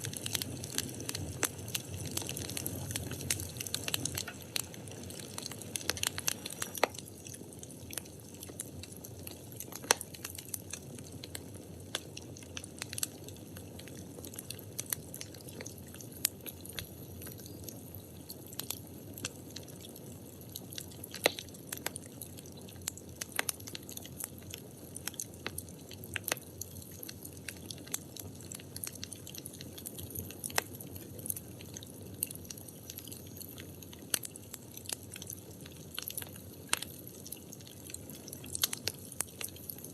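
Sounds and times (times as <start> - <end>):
firewood crackling and popping: 0.0 - 39.9
low rumble of flames: 0.0 - 39.9.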